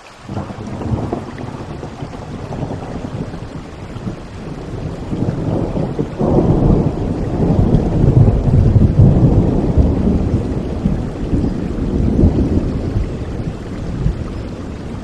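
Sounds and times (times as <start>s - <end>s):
steady rain: 0.0s - 15.0s
thunder rumbling: 0.3s - 15.0s.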